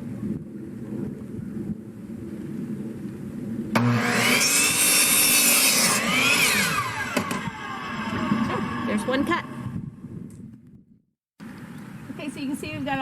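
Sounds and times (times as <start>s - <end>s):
power saw cutting wood: 3.8s - 9.8s.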